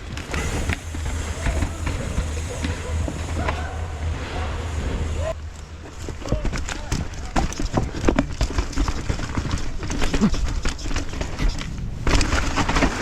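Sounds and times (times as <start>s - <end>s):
bike clattering and rattling: 0.0s - 13.0s
tyres and wind rumble: 0.0s - 13.0s
loud rushing noise: 0.2s - 5.4s.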